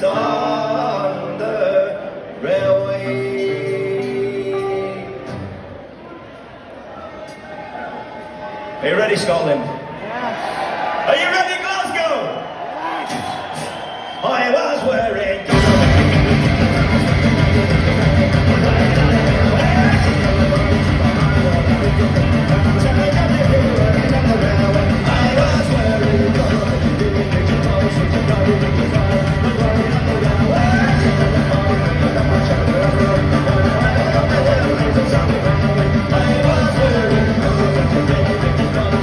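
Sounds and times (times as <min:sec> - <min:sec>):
live rock band playing: 0:15.5 - 0:39.0.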